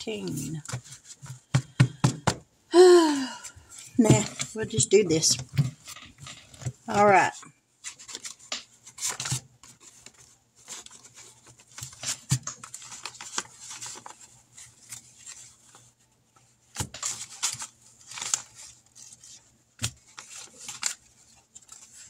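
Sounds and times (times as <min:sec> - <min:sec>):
paper bills and envelopes rustling: 0:03.7 - 0:22.0
sharp paper clicks and crinkles: 0:05.6 - 0:22.0.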